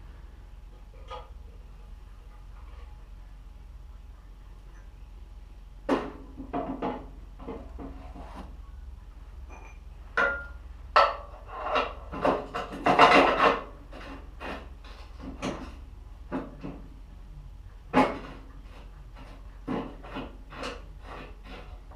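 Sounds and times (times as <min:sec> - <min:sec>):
low steady hum: 0:00.0 - 0:21.9
scraping and rubbing: 0:06.5 - 0:08.6, 0:11.1 - 0:16.8, 0:17.9 - 0:21.9.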